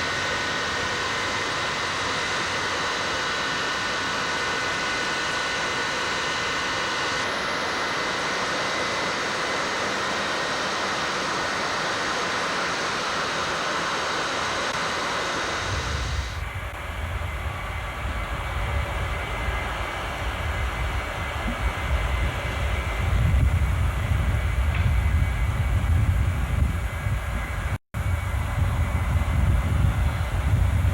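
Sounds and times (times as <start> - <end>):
jet engines whining: 0.0 - 30.9.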